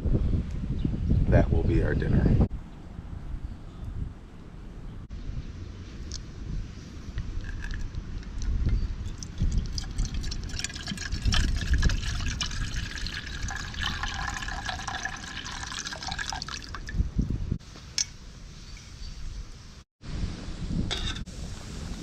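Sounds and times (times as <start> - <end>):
liquid pouring into container: 9.1 - 17.0.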